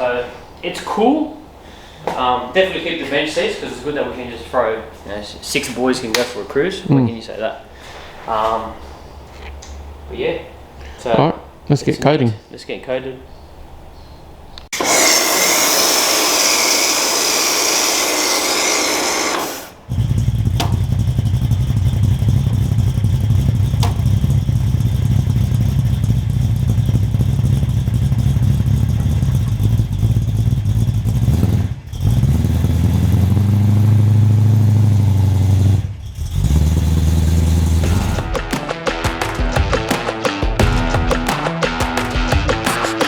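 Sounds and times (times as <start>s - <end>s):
car engine running: 19.8s - 38.4s.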